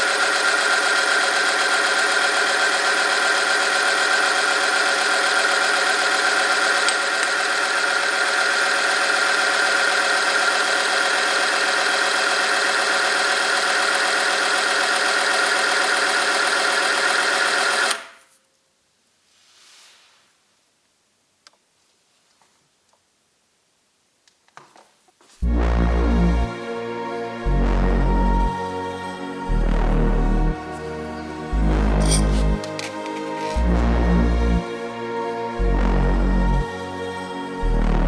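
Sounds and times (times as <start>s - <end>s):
machine shaft whine: 0.0s - 18.0s.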